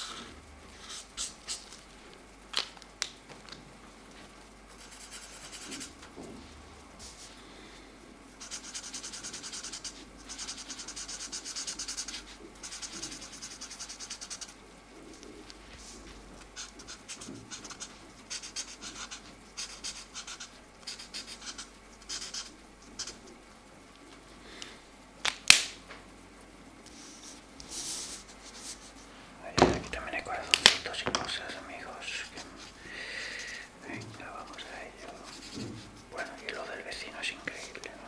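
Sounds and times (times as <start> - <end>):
markers scratching on paper: 0.0 - 1.9, 4.7 - 6.0, 8.4 - 23.4, 26.9 - 32.8, 33.4 - 38.0.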